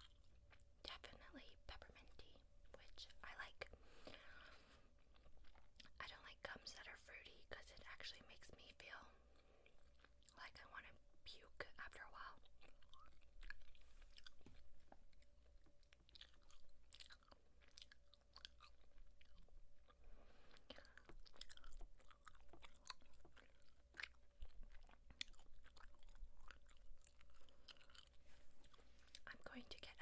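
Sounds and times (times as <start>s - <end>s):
gum chewing wet mouth clicks: 12.4s - 19.5s, 20.6s - 29.3s.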